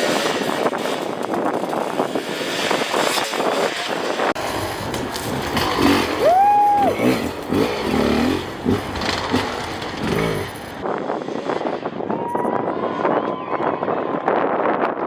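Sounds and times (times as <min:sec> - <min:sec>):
dirt bike engines revving: 0:00.0 - 0:10.9.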